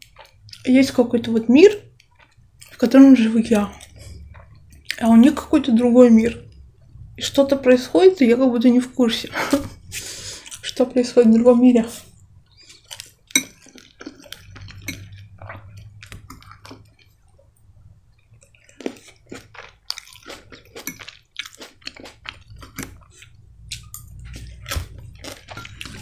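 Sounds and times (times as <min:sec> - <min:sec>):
chewing with wet mouth clicks: 0:00.0 - 0:00.7, 0:01.6 - 0:05.6, 0:10.4 - 0:10.8, 0:12.0 - 0:26.0
metal fork tapping and scraping bowl: 0:13.3 - 0:15.3, 0:20.8 - 0:21.2, 0:23.8 - 0:24.5.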